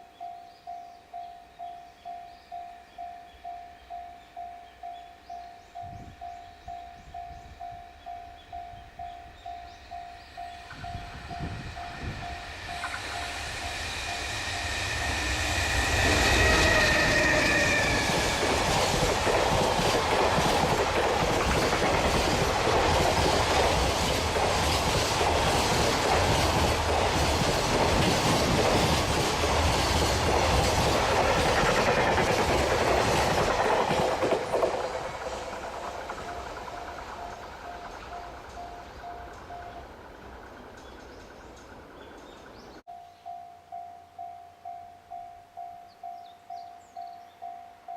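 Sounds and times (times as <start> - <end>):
two-tone train horn: 10.7 - 19.0.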